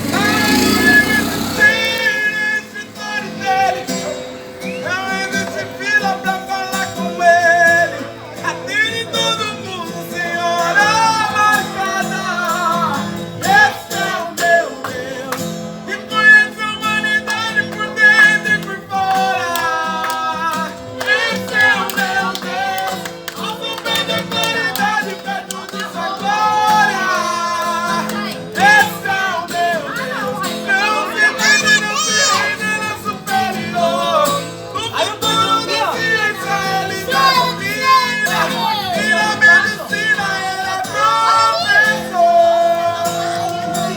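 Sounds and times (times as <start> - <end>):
plucked acoustic guitar: 0.0 - 43.9
person singing worship song: 9.0 - 43.9.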